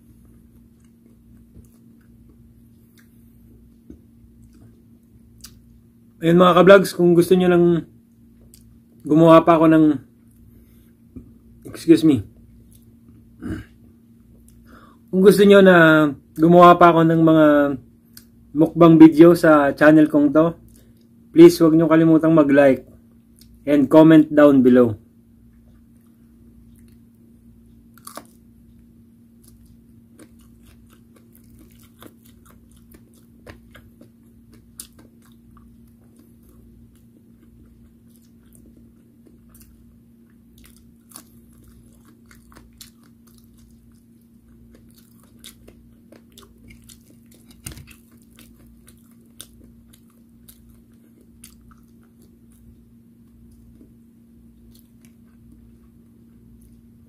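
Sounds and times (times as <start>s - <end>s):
steady low hum: 0.0s - 57.0s
chewing fried food crunching: 0.1s - 5.8s, 10.3s - 15.4s, 25.5s - 57.0s.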